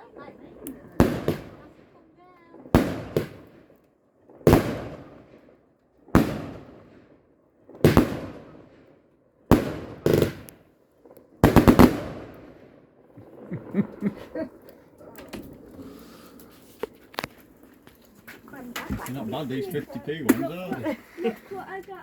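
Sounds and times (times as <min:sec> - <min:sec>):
firework bangs: 0:00.0 - 0:17.6
faint crackling pops: 0:00.2 - 0:06.8, 0:09.5 - 0:22.0.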